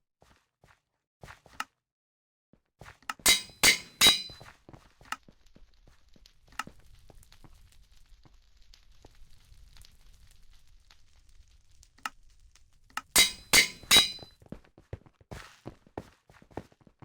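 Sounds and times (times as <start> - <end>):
clinking knocks with ringing: 3.3 - 4.4, 13.2 - 14.3.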